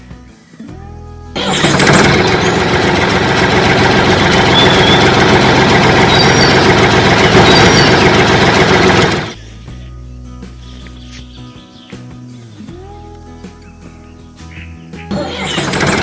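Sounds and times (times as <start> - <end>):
loud machine motor running: 1.4 - 9.4, 15.1 - 16.0.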